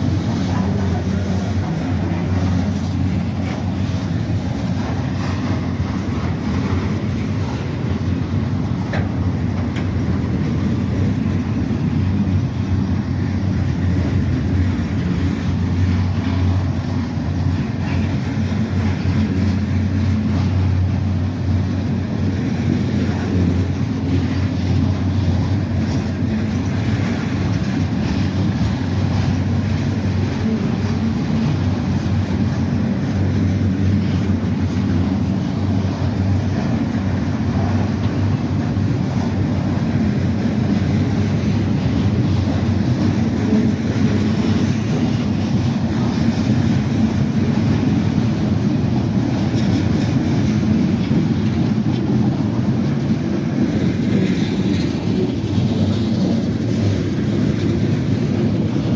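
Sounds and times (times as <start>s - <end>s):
freight train rumbling: 0.0s - 58.9s.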